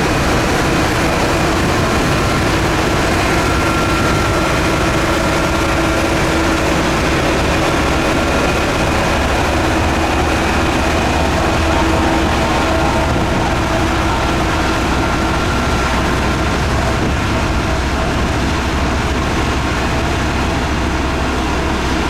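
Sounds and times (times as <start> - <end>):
heavy diesel machinery running: 0.0 - 22.0.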